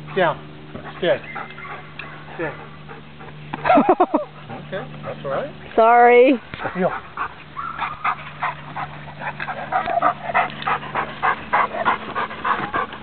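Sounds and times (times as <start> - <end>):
dog panting: 0.0 - 3.6, 4.2 - 5.5, 6.5 - 13.0.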